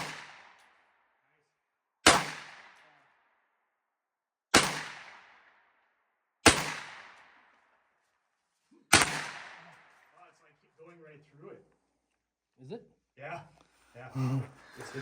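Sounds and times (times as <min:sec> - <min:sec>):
gunshots: 0:00.0 - 0:00.6, 0:02.0 - 0:02.8, 0:04.5 - 0:05.4, 0:06.4 - 0:07.4, 0:08.9 - 0:10.0.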